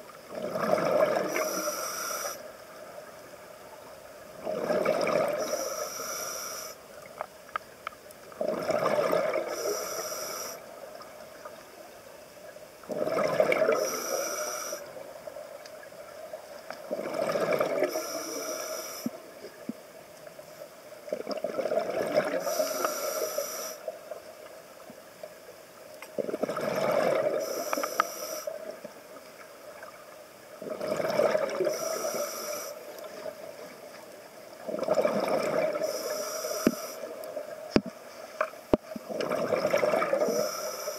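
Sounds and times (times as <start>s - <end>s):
faint hum: 0.0s - 40.9s
scuba regulator breathing bubbles: 0.3s - 2.5s, 4.4s - 6.8s, 8.4s - 10.6s, 12.9s - 15.0s, 16.9s - 19.2s, 21.2s - 23.9s, 26.2s - 28.6s, 30.6s - 33.0s, 34.7s - 37.2s, 39.1s - 40.9s.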